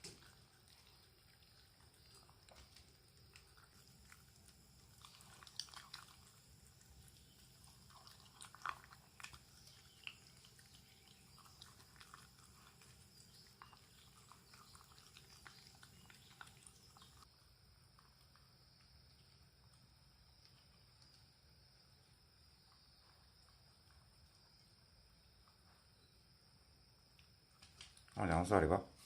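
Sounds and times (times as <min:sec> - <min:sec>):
dog chewing: 0:00.0 - 0:17.3.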